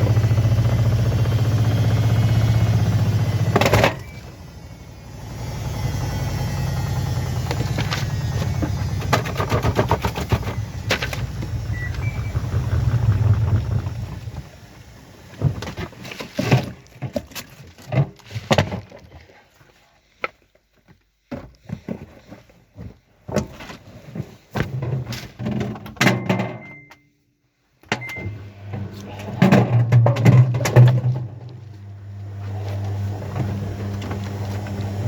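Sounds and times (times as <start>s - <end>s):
washing machine running: 0.0s - 16.7s, 27.9s - 35.0s
clunks and knocks: 3.5s - 4.2s, 7.4s - 14.5s, 21.3s - 23.8s, 29.2s - 31.6s
short electronic beep: 11.6s - 13.2s, 26.2s - 27.2s.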